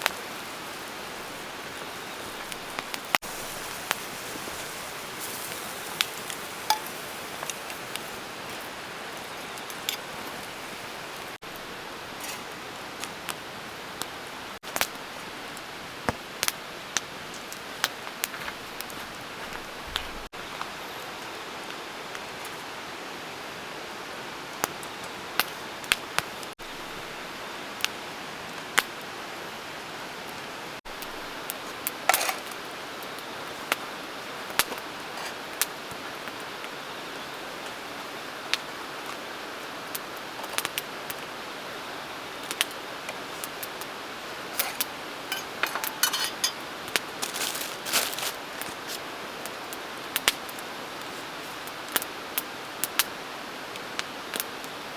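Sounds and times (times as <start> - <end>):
steady hiss: 0.0 - 54.9
camp cookware clinking: 0.9 - 13.1, 30.9 - 32.7, 42.4 - 49.0.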